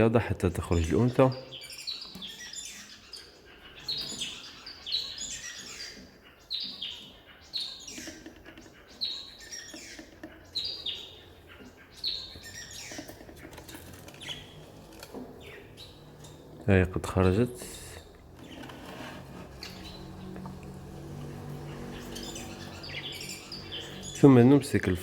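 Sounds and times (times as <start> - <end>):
budgerigars chirping: 0.0 - 25.0.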